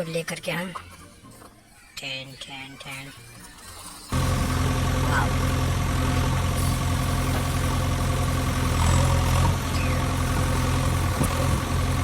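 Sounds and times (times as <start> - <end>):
toy engine humming: 4.1 - 12.0.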